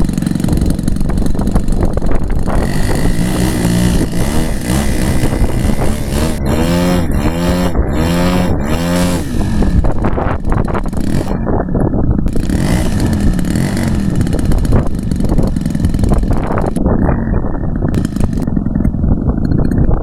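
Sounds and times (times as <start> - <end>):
model airplane engine: 0.0 - 19.7
wind rumble on microphone: 0.0 - 20.0.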